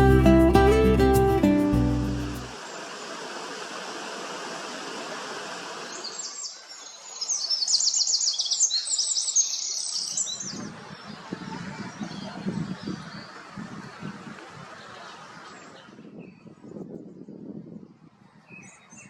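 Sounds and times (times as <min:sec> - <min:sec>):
steady background hiss: 0:01.9 - 0:08.1
robin singing: 0:05.9 - 0:10.7.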